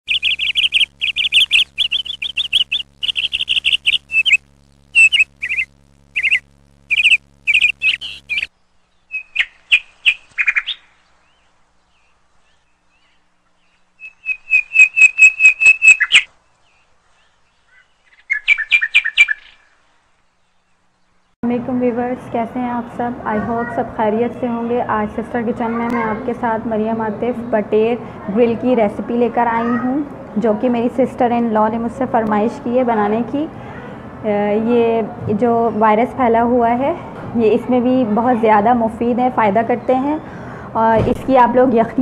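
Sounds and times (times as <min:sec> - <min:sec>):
bird chirping: 0:00.0 - 0:21.4.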